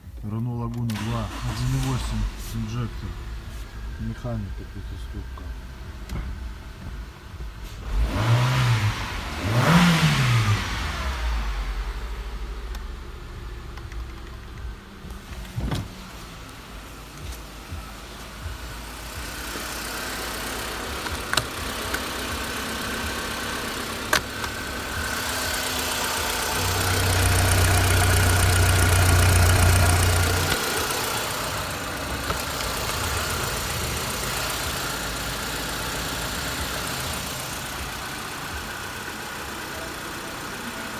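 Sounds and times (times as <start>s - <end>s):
petrol engine running: 0.0s - 40.9s.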